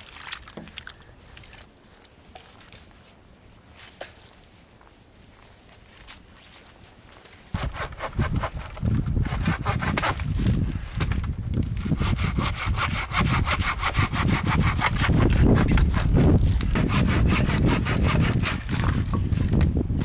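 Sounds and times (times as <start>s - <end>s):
hand saw cutting wood: 7.6s - 10.6s, 11.7s - 19.0s.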